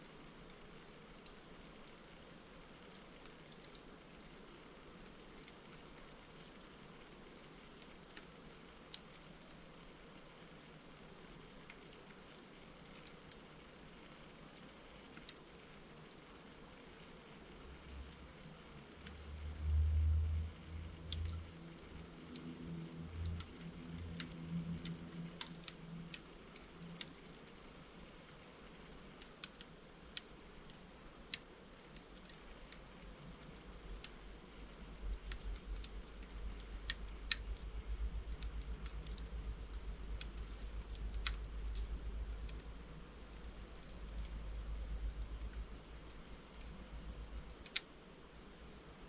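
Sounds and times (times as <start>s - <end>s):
wood fire crackling and popping: 0.0s - 48.8s
low fluttering rumble: 19.2s - 26.2s.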